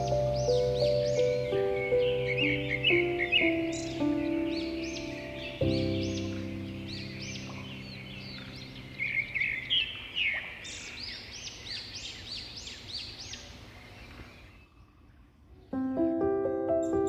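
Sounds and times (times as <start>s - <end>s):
held music chord: 0.0s - 9.6s, 15.8s - 17.0s
small songbirds chirping: 0.0s - 17.0s.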